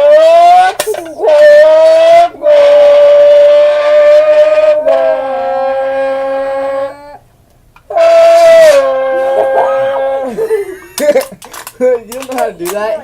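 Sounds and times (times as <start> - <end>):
car engine imitation through tin can: 0.0 - 2.4, 10.9 - 13.0.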